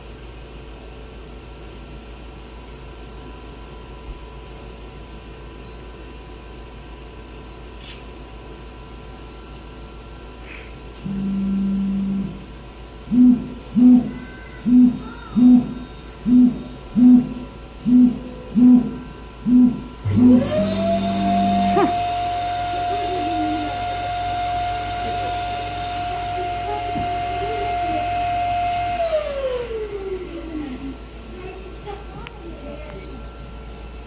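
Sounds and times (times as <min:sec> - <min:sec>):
machine humming: 0:08.9 - 0:31.5
motor whine: 0:09.0 - 0:31.1
short low hooting tones: 0:09.3 - 0:30.3.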